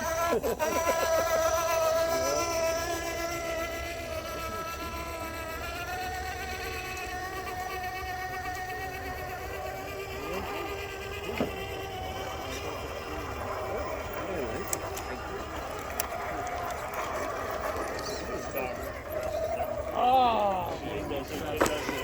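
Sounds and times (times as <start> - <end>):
electric motor whine: 0.0 - 22.0.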